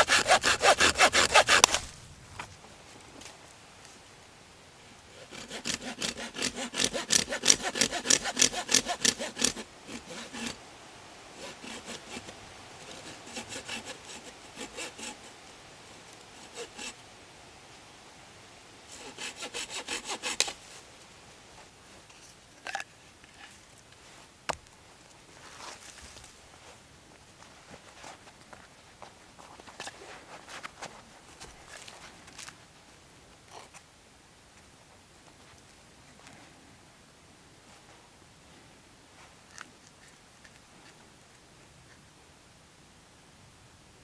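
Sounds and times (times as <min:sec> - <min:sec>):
hand saw cutting wood: 0:00.0 - 0:02.0, 0:05.1 - 0:10.6, 0:11.4 - 0:15.4, 0:16.3 - 0:17.0, 0:18.9 - 0:20.6.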